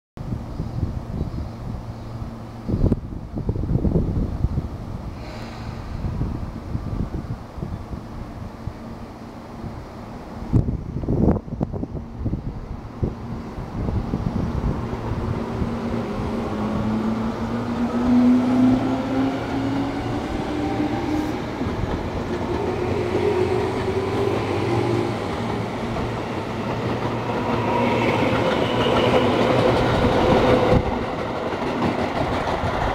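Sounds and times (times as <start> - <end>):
train wheels rumbling and clacking: 5.2 - 6.5, 13.6 - 32.9.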